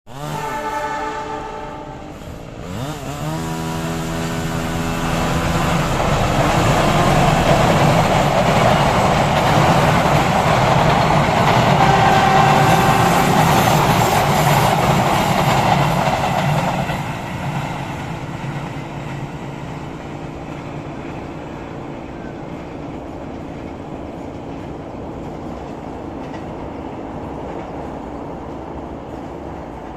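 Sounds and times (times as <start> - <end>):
locomotive horn: 0.1 - 2.9, 3.8 - 8.0, 11.7 - 14.9
train rumble and wheel clatter: 0.2 - 29.9.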